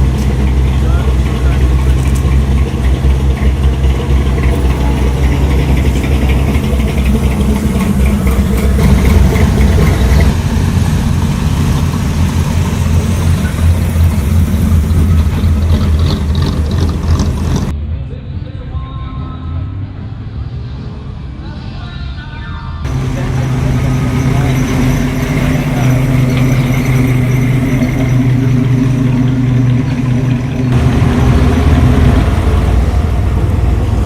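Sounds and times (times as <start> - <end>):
car engine idling: 0.0 - 17.7, 22.9 - 34.0.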